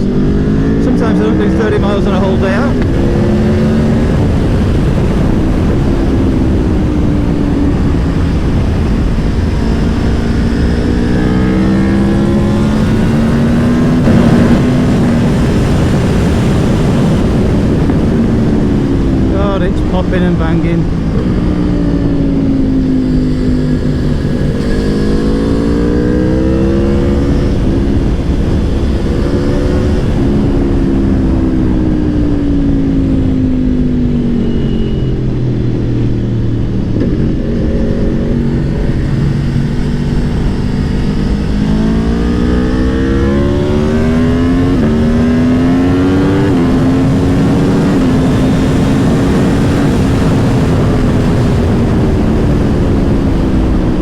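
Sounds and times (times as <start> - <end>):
motorcycle engine revving: 0.0 - 54.0
wind rush: 0.0 - 54.0
engine popping and banging: 14.0 - 21.4.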